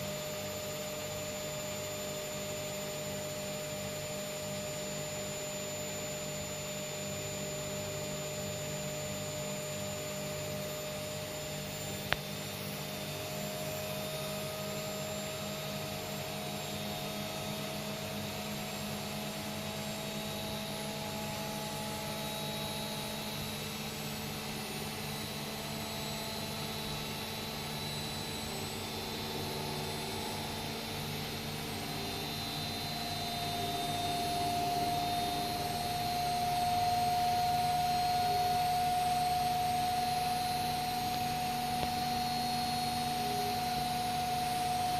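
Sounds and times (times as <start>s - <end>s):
washing machine humming: 17.8s - 44.9s.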